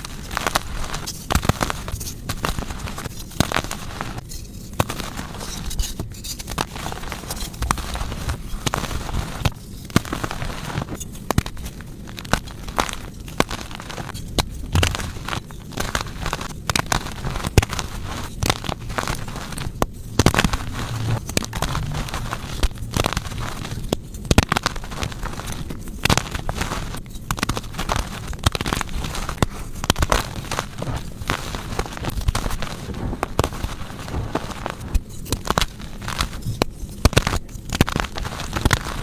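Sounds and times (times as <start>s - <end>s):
chalk crunching and crumbling: 0.0s - 39.0s.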